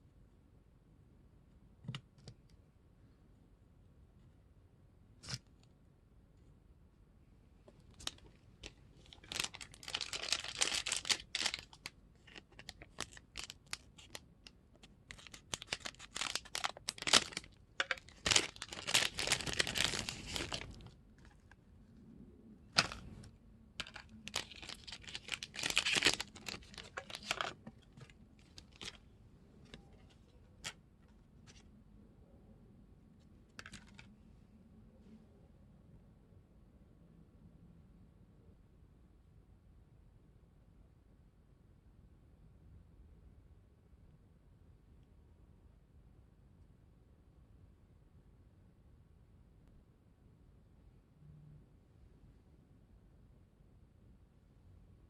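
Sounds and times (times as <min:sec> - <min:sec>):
plastic wrapper tearing and crinkling: 0:08.0 - 0:14.2, 0:14.8 - 0:20.9, 0:22.8 - 0:23.0, 0:23.8 - 0:29.0.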